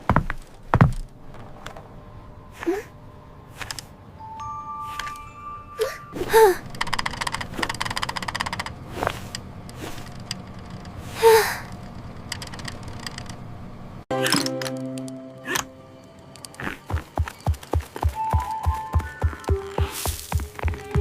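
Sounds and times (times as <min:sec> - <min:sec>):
low steady hum: 0:00.0 - 0:21.0
rapid clicking: 0:06.6 - 0:11.0.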